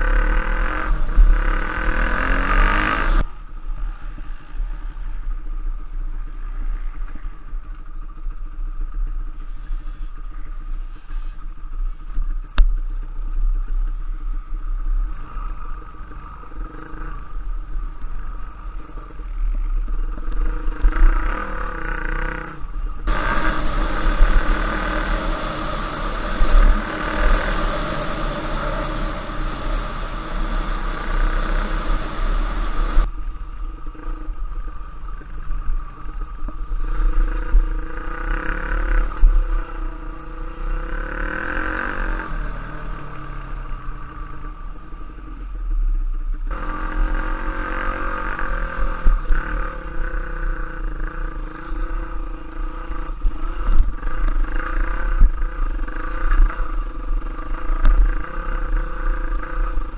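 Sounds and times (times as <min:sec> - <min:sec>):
dirt bike engine revving: 0:00.0 - 0:03.2, 0:20.4 - 0:33.1
low rumble on microphone: 0:00.0 - 0:41.1.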